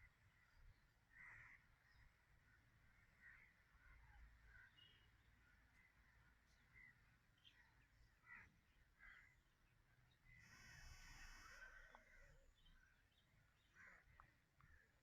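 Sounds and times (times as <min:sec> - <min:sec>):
short bird chirps: 0:10.3 - 0:12.7.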